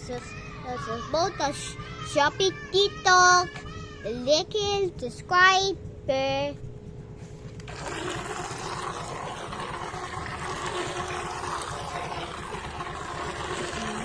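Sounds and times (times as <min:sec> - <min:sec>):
toy boat motor in water: 0:07.6 - 0:14.0.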